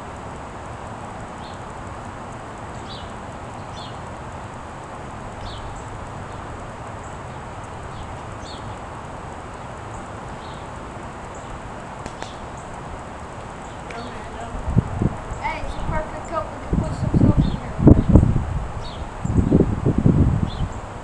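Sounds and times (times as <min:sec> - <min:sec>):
steady outdoor hiss: 0:00.0 - 0:21.0
small bird chirping: 0:02.6 - 0:04.6, 0:05.4 - 0:08.9, 0:09.5 - 0:12.8, 0:13.6 - 0:19.6.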